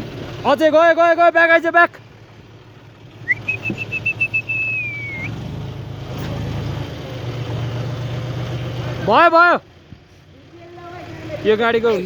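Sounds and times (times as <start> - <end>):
tractor engine running: 0.0 - 12.0
long warbling whistle: 3.2 - 5.3.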